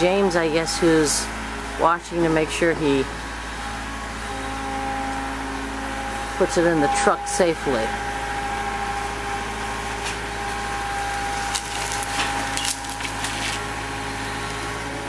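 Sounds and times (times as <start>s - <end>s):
crane engine running: 0.0s - 15.0s
debris knocking and cracking: 11.3s - 13.6s.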